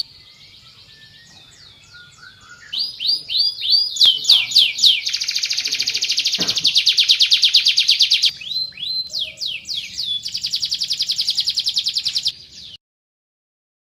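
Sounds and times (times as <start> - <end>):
canary singing trills and whistles: 0.0 - 12.8.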